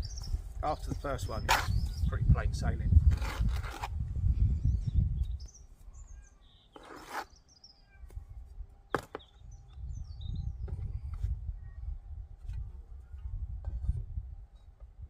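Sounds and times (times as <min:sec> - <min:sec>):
small birds chirping: 0:00.0 - 0:02.5, 0:04.3 - 0:11.9
brief scrape: 0:06.8 - 0:07.4.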